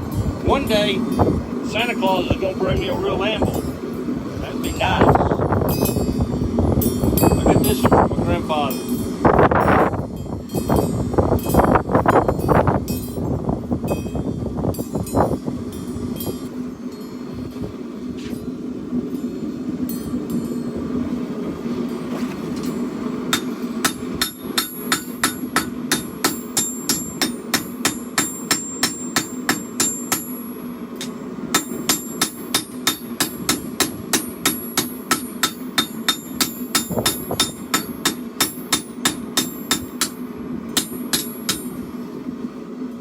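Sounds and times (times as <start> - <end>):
hammer ringing on anvil: 22.6 - 40.2, 40.8 - 41.8.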